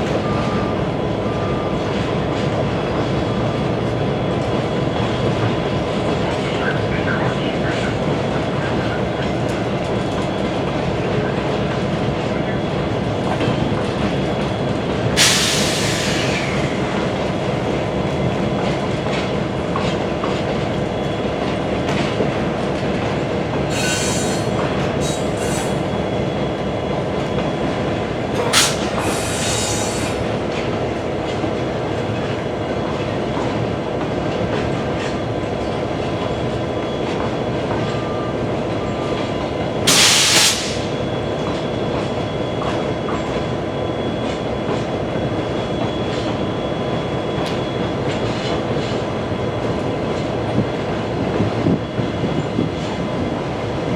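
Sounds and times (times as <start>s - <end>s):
train rumbling and clattering on rails: 0.0s - 53.9s.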